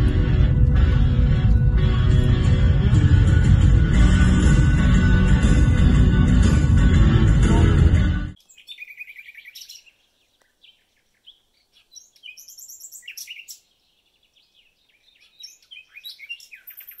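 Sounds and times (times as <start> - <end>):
small birds chirping and trilling: 8.4 - 17.0.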